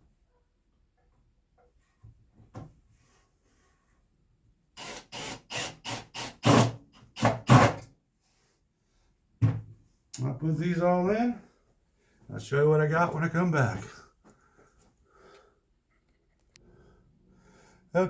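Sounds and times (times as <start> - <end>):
power drill driving screws into wood: 4.8 - 7.9.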